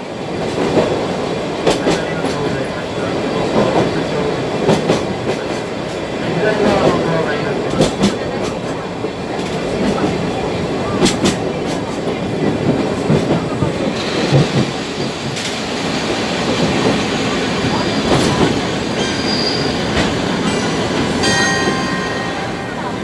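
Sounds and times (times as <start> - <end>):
train wheels rumbling on rails: 0.0 - 23.0
rail joint clicks: 0.4 - 23.0
high wheel squeal: 17.5 - 21.7.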